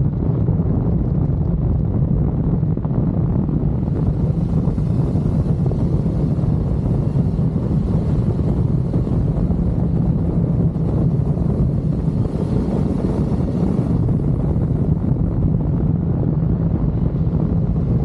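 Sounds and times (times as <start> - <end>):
wind on microphone: 0.0 - 18.0
sport bike engine running: 3.4 - 18.0.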